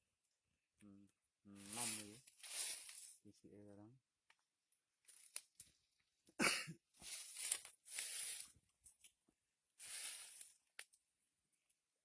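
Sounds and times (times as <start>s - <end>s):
rustling and crinkling: 1.6s - 3.2s, 5.0s - 5.9s, 7.0s - 9.2s, 9.8s - 11.0s.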